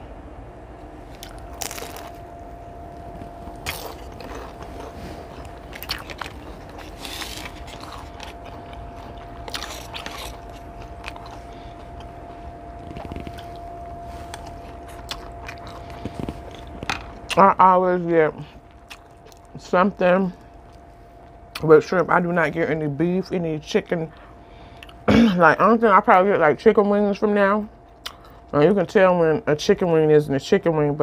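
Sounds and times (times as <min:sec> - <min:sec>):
crunchy bites: 0:01.1 - 0:17.4, 0:18.5 - 0:19.6
person biting and chewing food: 0:01.1 - 0:17.4, 0:18.5 - 0:19.6.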